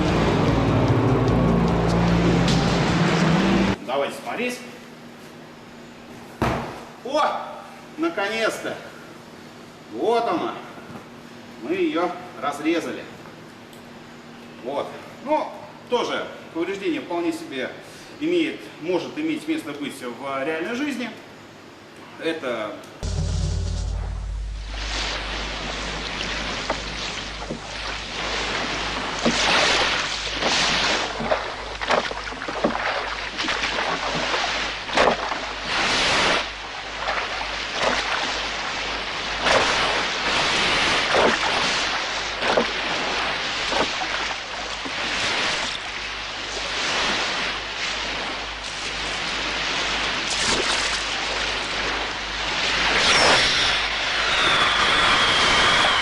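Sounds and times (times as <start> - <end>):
water splashing and sloshing: 23.0 - 54.8
high whistle falling in pitch: 54.2 - 56.0.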